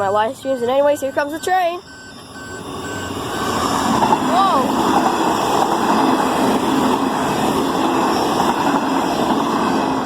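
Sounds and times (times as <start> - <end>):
electric train passing at speed: 0.0 - 10.0.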